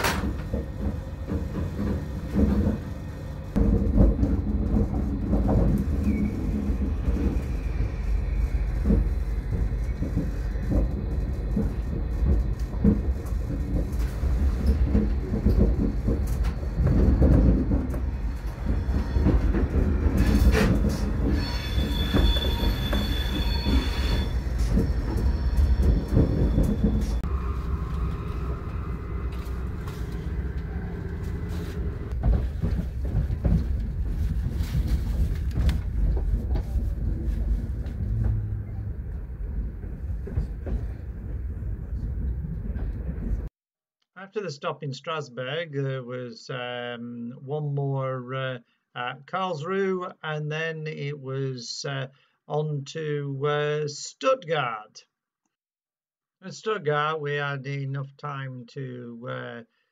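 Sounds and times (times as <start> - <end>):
train wheels rumbling on rails: 0.0 - 43.5
wheels squealing: 18.2 - 32.2.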